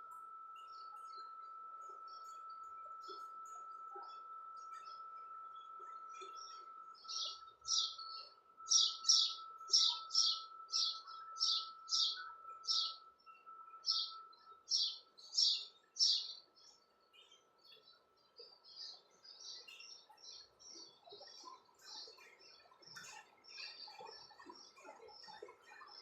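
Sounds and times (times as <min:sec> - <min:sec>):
faint steady high tone: 0:00.0 - 0:20.8
small bird chirping: 0:05.6 - 0:26.0.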